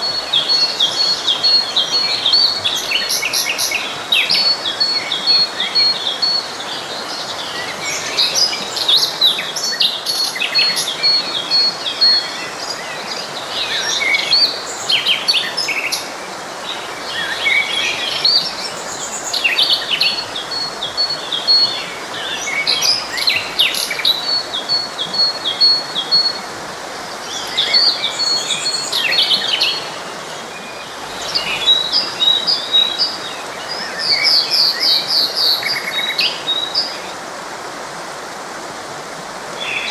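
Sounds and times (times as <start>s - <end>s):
songbirds singing and chirping: 0.0s - 37.2s, 39.5s - 39.9s
stream rushing: 0.0s - 39.9s.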